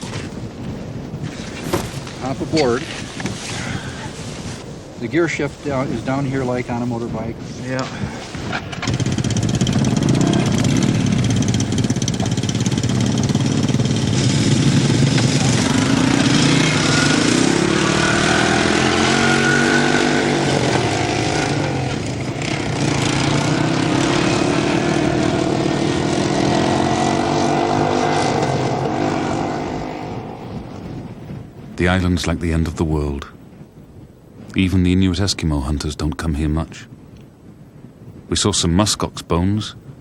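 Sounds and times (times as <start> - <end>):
atv engines revving: 1.6 - 2.8, 8.4 - 30.4.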